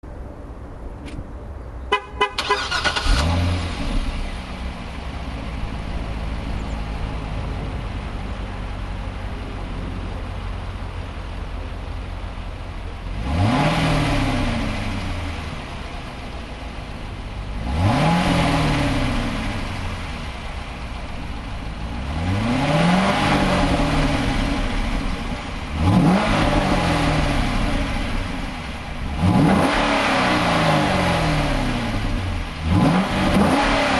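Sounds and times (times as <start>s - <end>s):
car engine idling: 0.1s - 33.9s
car engine cranking and starting: 2.2s - 9.2s
car engine revving: 2.4s - 33.9s.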